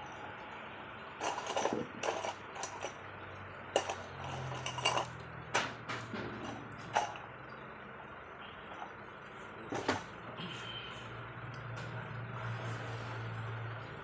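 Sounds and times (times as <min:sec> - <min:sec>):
metal tools clinking: 0:01.2 - 0:03.0, 0:03.8 - 0:05.2.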